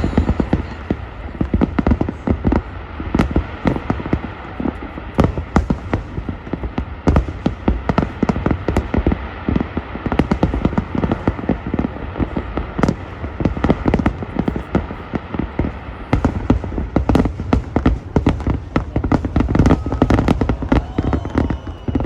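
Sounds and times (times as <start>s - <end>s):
low rumble: 0.0s - 1.8s
distant fireworks bangs and crackles: 0.0s - 22.0s.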